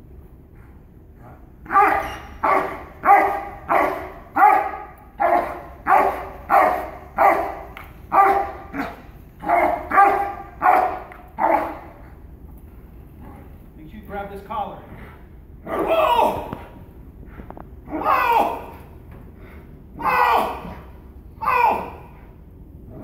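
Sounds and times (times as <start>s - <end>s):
dog barking: 1.6s - 11.9s.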